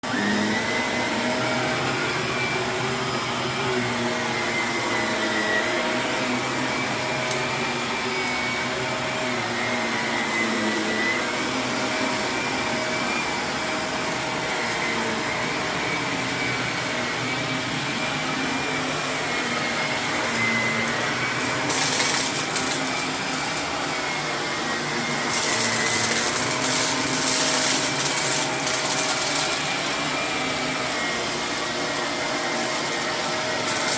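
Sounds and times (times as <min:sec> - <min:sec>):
vacuum cleaner running on carpet: 0:00.0 - 0:33.9
grit crackling in vacuum: 0:19.5 - 0:33.9.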